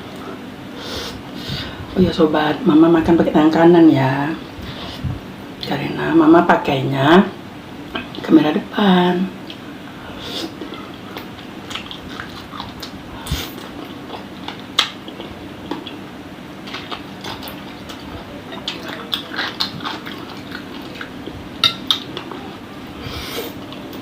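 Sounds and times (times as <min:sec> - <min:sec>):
faint steady hum: 0:00.0 - 0:24.0
biting and chewing: 0:10.6 - 0:22.5.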